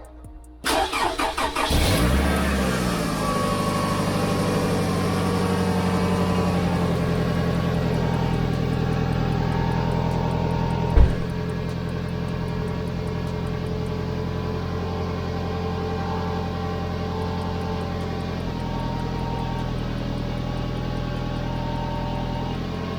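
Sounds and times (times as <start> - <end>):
car engine starting and idling: 0.2 - 22.9
sharp thump: 10.9 - 11.6.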